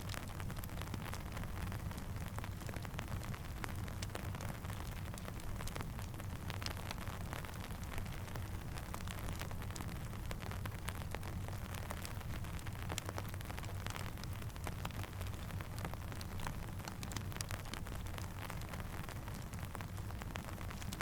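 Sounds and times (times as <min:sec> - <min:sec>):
crackling campfire: 0:00.0 - 0:21.0
steady rain: 0:00.0 - 0:21.0
low steady rumble: 0:15.2 - 0:21.0.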